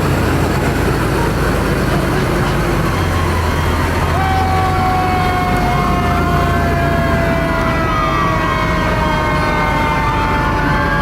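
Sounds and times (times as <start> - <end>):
fire truck engines rumbling: 0.0 - 11.0
siren sinking in pitch: 2.6 - 11.0.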